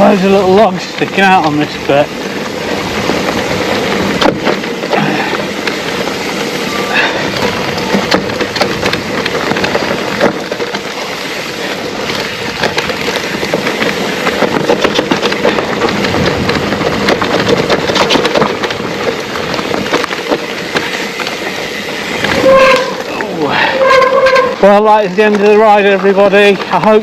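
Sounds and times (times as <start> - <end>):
bike knocks and rattles: 0.0 - 27.0
tyres rolling over dirt: 0.0 - 27.0.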